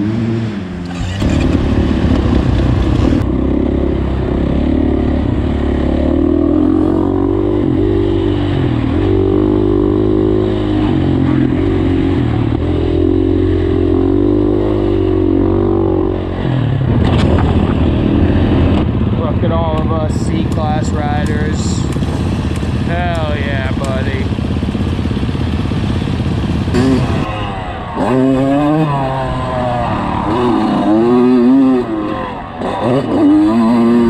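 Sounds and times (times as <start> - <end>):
dirt bike engine revving: 0.0 - 34.0
sharp clacks: 19.7 - 24.1.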